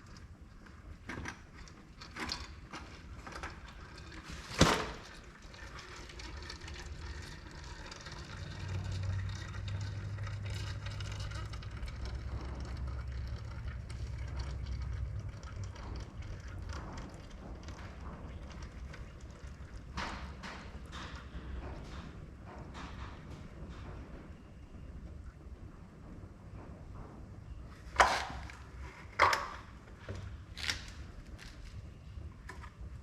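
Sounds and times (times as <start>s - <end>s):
fluid pouring into a bucket: 0.0s - 21.0s
low rumble: 6.8s - 33.0s.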